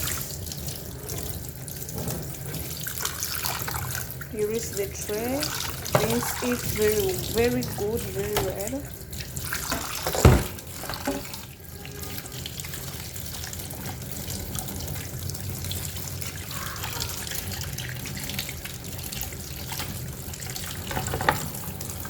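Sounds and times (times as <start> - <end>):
water running from a tap: 0.0 - 22.0.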